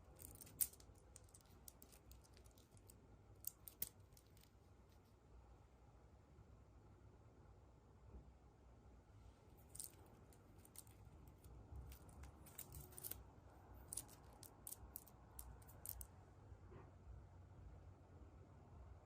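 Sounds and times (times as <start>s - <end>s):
plastic packaging crinkling: 0.0s - 4.5s, 9.6s - 13.2s.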